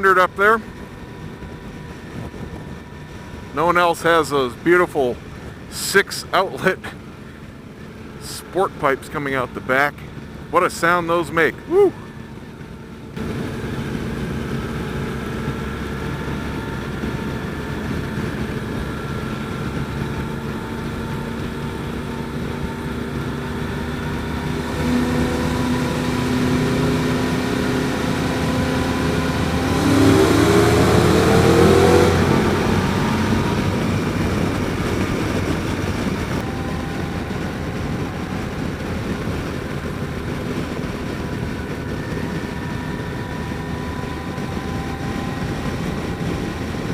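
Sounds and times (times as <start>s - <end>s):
motorcycle engines running: 0.0s - 46.9s
wind and road noise: 0.0s - 46.9s
engine revving up: 13.1s - 46.9s.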